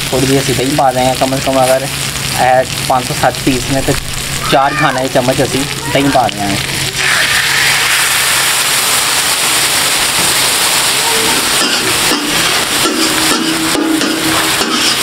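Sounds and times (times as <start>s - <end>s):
food sizzling on a griddle: 0.0s - 15.0s
metal spatula scraping griddle: 11.6s - 15.0s.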